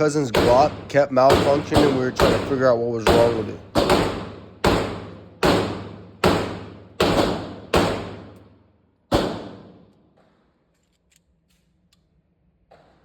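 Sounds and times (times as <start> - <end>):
echoing gunshots: 0.0 - 10.0.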